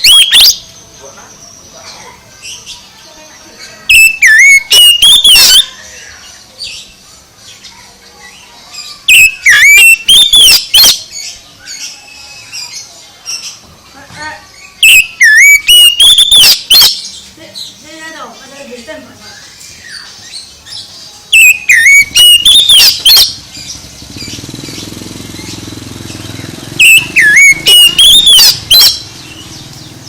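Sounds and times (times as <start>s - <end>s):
bird whistling song: 0.0s - 0.8s, 3.6s - 6.9s, 8.9s - 13.6s, 14.6s - 17.3s, 19.3s - 30.0s
soft bird twittering: 0.0s - 30.0s.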